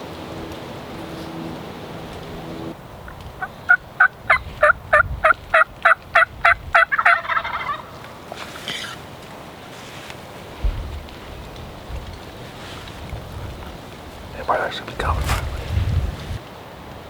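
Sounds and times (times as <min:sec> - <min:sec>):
turkey yelping: 0:03.4 - 0:08.9.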